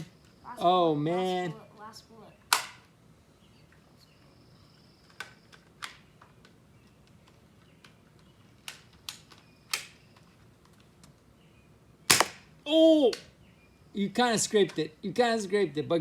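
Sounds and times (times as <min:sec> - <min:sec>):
plastic blaster clicks: 0:02.5 - 0:02.8, 0:08.6 - 0:10.0, 0:12.1 - 0:12.4.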